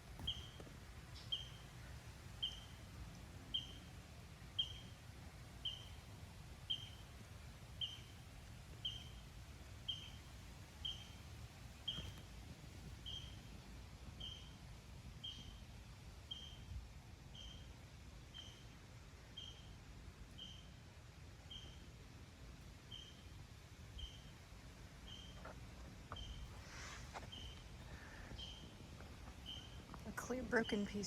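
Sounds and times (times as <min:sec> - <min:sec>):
faint outdoor background noise: 0:00.0 - 0:31.0
bird chirping: 0:00.2 - 0:01.8, 0:02.4 - 0:02.9, 0:03.5 - 0:03.9, 0:04.5 - 0:05.0, 0:05.6 - 0:07.1, 0:07.7 - 0:08.2, 0:08.8 - 0:11.2, 0:11.8 - 0:12.2, 0:13.0 - 0:13.5, 0:14.2 - 0:14.6, 0:15.2 - 0:15.6, 0:16.2 - 0:16.7, 0:17.3 - 0:17.7, 0:18.3 - 0:20.8, 0:21.4 - 0:21.8, 0:22.9 - 0:23.3, 0:23.9 - 0:24.4, 0:25.0 - 0:25.5, 0:26.1 - 0:31.0.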